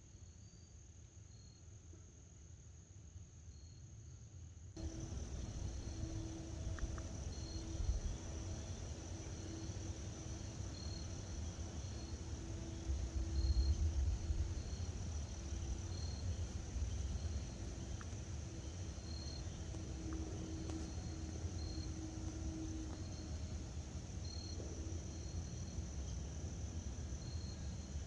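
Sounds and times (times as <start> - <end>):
low rumble: 4.8 - 24.7
crickets trilling: 4.8 - 28.0.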